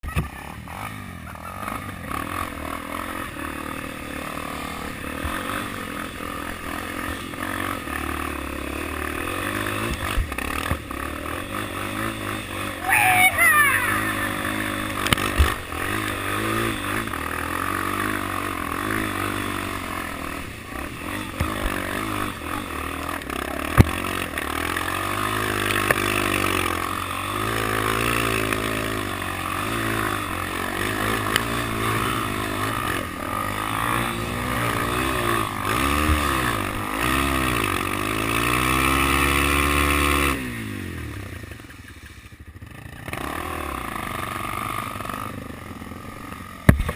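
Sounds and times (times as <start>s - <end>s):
motorcycle engine revving: 0.0s - 46.9s
sharp crack: 14.7s - 15.7s, 23.2s - 24.5s, 46.6s - 46.9s.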